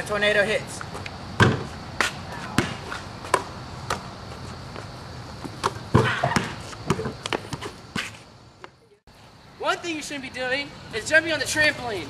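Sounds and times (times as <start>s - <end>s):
basketball bouncing: 1.4s - 4.1s, 5.4s - 8.1s.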